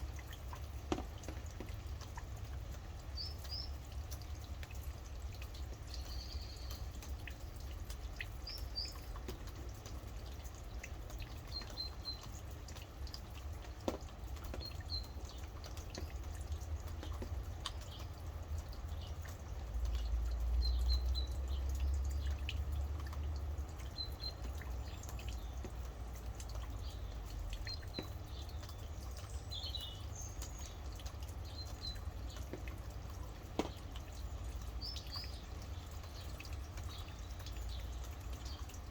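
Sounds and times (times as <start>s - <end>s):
rain dripping and pattering: 0.0s - 38.9s
birds chirping: 3.0s - 4.5s, 5.5s - 10.6s, 23.8s - 38.8s.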